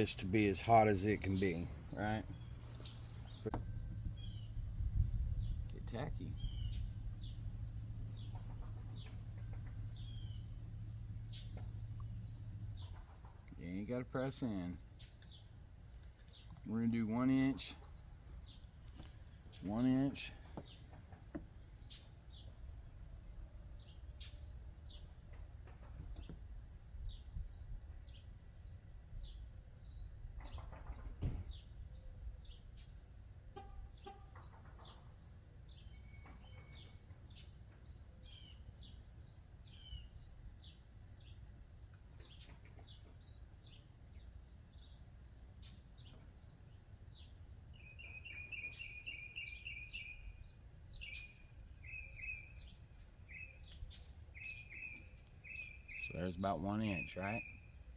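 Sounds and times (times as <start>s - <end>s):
birds chirping: 0.0s - 57.9s
faint low rumble: 1.1s - 13.8s.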